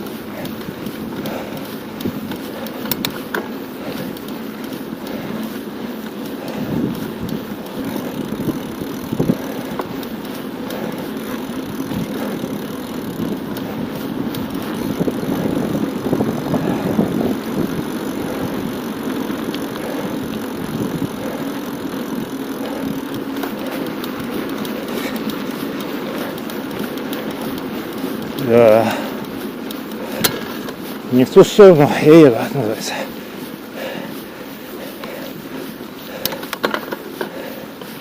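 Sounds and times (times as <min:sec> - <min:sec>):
bicycle rolling on asphalt: 0:00.0 - 0:38.0
wind on the microphone: 0:13.2 - 0:18.7.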